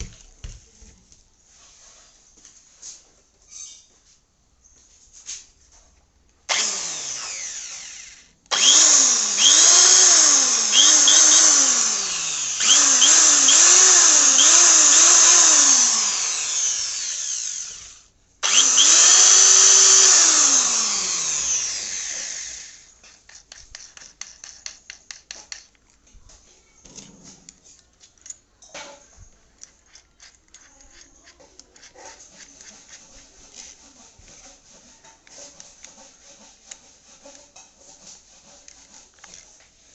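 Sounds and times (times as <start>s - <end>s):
electric drill running unloaded: 6.5s - 22.9s
clicks and handling noise: 23.0s - 34.4s.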